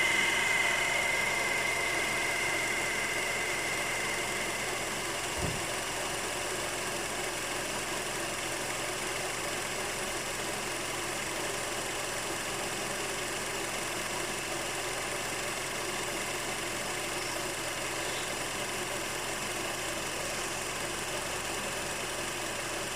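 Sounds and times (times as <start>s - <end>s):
car engine idling: 0.0s - 22.9s
low thump: 5.4s - 5.7s.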